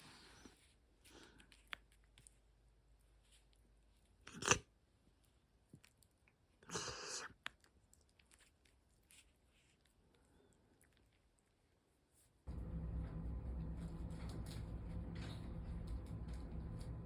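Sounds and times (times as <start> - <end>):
quiet crunching and rustling: 7.9 - 17.0.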